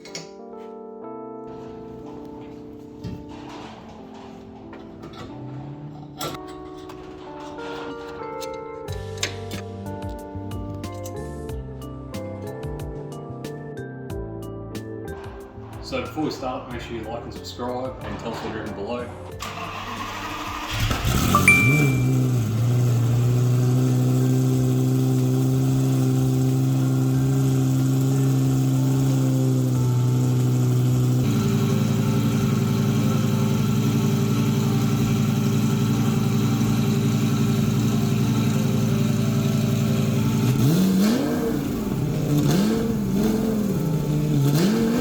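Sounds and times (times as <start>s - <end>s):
sports car engine idling and revving: 19.4s - 45.0s.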